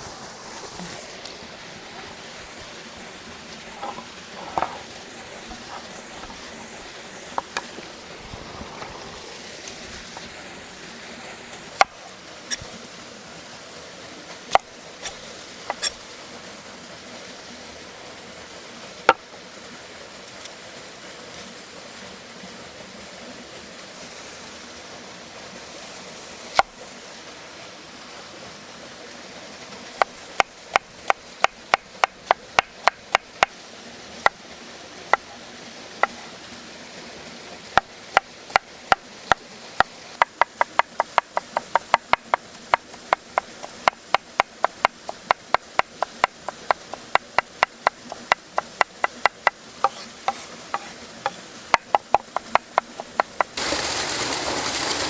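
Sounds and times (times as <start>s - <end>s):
running water: 0.0s - 55.0s
knife chopping on wooden board: 14.5s - 16.0s, 30.0s - 33.5s, 37.8s - 53.6s.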